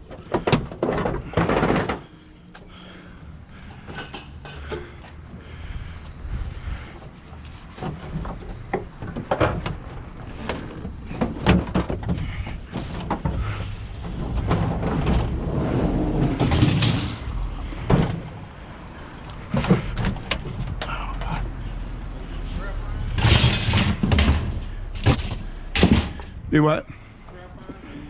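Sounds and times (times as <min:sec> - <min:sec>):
machine wheels rumbling: 0:07.5 - 0:26.6
exercise machine clunking and rattling: 0:07.8 - 0:21.8, 0:23.0 - 0:26.5.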